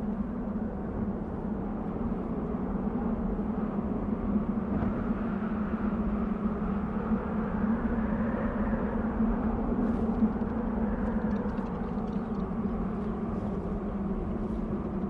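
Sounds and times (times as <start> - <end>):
faint ticks: 10.0 - 13.6.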